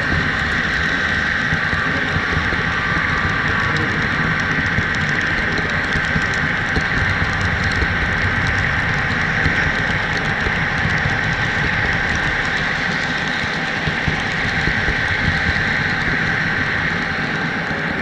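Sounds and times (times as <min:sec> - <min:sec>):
model train rolling rattle: 0:00.0 - 0:18.0
wheels ticking on rails: 0:00.0 - 0:18.0.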